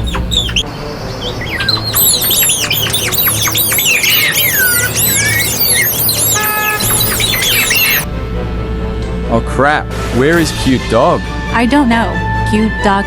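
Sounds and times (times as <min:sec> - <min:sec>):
birds chirping and squawking: 0:00.0 - 0:08.0.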